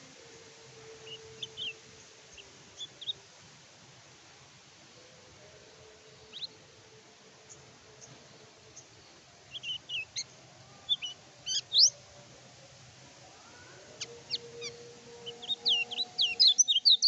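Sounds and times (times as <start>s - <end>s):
faint steady hum: 0.0s - 17.0s
songbird high chirps: 1.0s - 3.2s, 6.2s - 6.6s, 7.5s - 12.0s, 13.9s - 17.0s.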